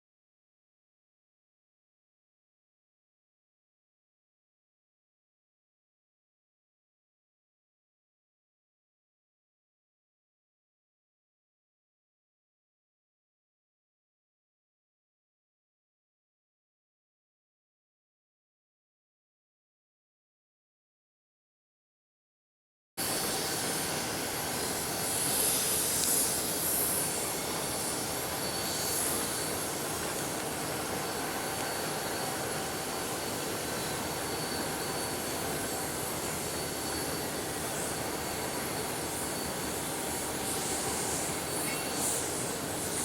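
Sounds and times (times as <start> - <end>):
diesel locomotives droning: 23.0 - 43.0
faint high whine: 23.0 - 43.0.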